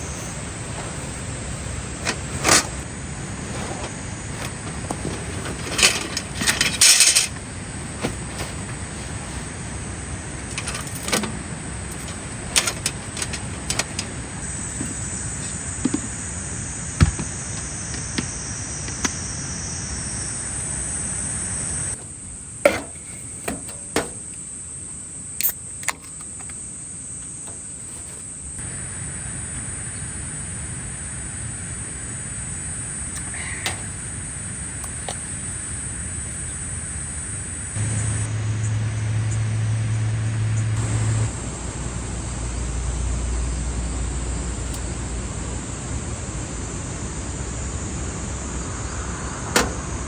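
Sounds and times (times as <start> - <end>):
knocks and clicks of handling: 0.0 - 15.1, 22.7 - 24.4, 33.2 - 34.0, 49.6 - 49.8
insects shrilling: 21.9 - 37.8.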